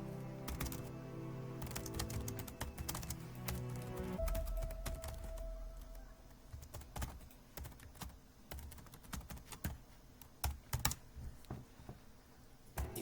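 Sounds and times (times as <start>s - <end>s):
keyboard typing: 0.4s - 0.9s, 1.6s - 11.0s.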